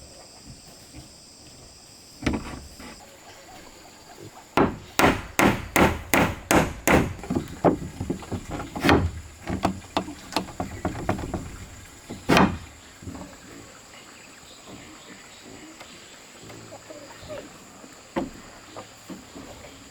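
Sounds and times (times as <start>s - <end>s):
hammer striking wood: 4.6s - 12.7s.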